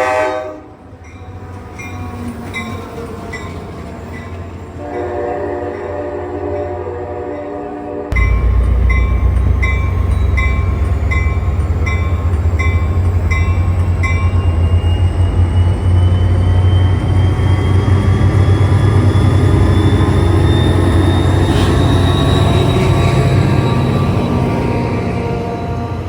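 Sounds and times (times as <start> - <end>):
train horn: 0.0 - 2.0, 4.7 - 12.1, 19.7 - 26.0
heavy train rumble: 0.0 - 26.0
rising train whine: 0.0 - 26.0
crossing bell ringing: 1.0 - 26.0.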